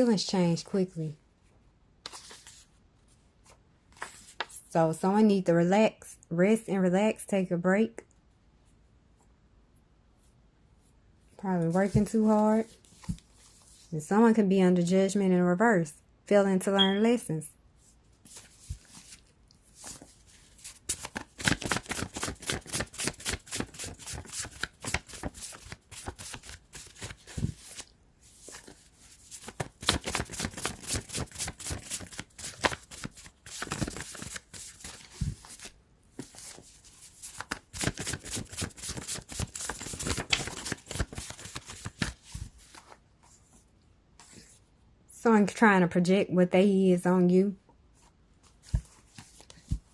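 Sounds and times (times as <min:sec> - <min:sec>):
cards being shuffled: 0:02.0 - 0:02.6, 0:18.2 - 0:43.0.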